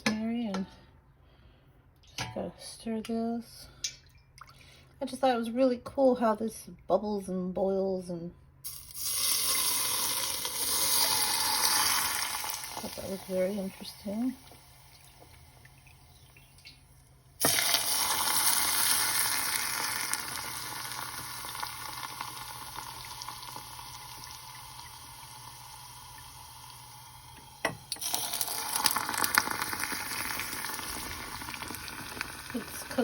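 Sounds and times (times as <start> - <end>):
garlic sizzling in hot oil: 8.7 - 15.6, 17.4 - 33.0
oil crackling: 17.4 - 26.9, 27.9 - 33.0.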